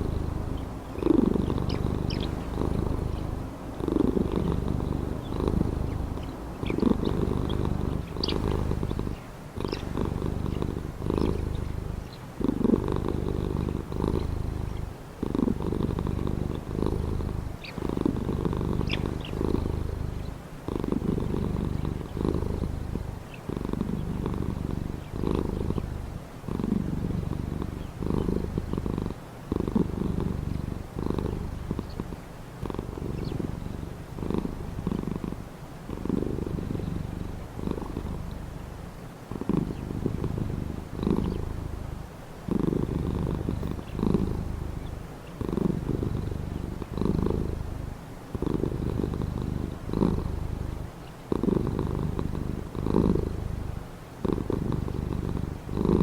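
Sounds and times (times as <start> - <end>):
cat purring: 0.0 - 56.0
faint bird chirps: 0.1 - 3.5, 4.2 - 12.4, 15.8 - 26.3, 27.6 - 28.8, 30.5 - 33.6, 36.4 - 41.9, 43.2 - 47.8, 49.2 - 51.3.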